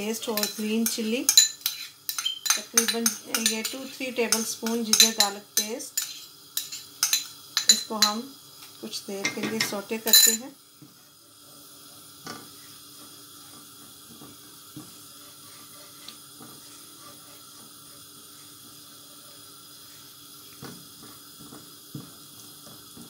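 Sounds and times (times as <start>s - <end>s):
paste sizzling in hot oil: 0.0s - 23.0s
spatula tapping a pan: 0.3s - 8.2s.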